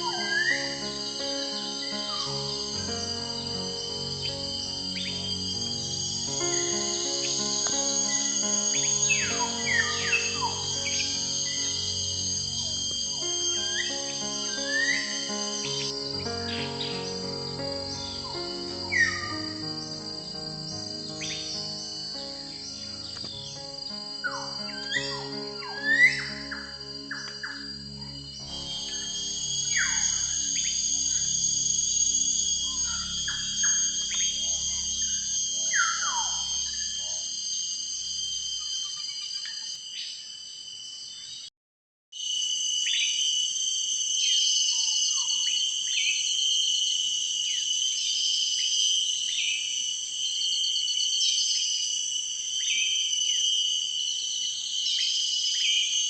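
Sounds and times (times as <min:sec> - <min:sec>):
soft background music: 0:00.0 - 0:38.4
pulsed trills: 0:00.0 - 0:39.0
downward-sweeping calls: 0:00.0 - 0:40.2
high-pitched insect chorus: 0:00.0 - 0:41.5, 0:42.2 - 0:56.0.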